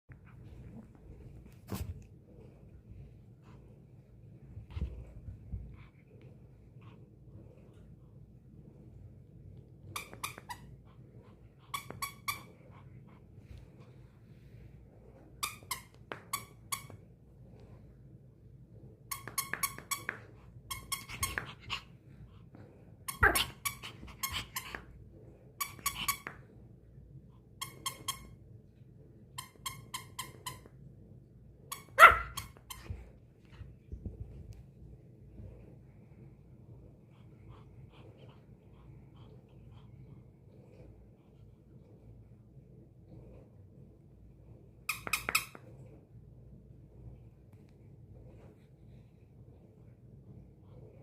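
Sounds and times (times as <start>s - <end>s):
squeaky dog toy squeaking: 9.9s - 10.8s, 11.7s - 12.5s, 19.1s - 21.5s, 27.6s - 28.4s, 29.4s - 30.7s, 44.9s - 45.6s
dog barking: 32.0s - 32.4s.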